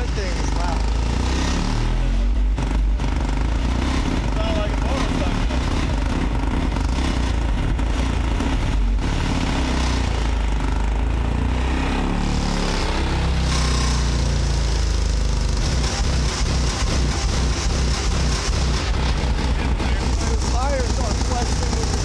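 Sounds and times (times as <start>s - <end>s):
subwoofer deep bass: 0.0s - 22.0s.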